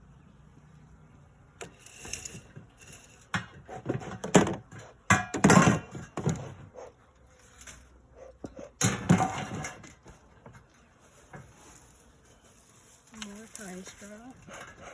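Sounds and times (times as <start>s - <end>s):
dry pine straw crunching: 10.7s - 14.6s.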